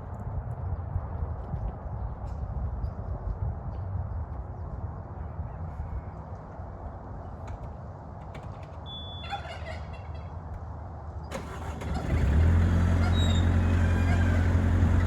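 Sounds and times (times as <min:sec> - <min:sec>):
skid steer engine running: 0:11.3 - 0:15.0.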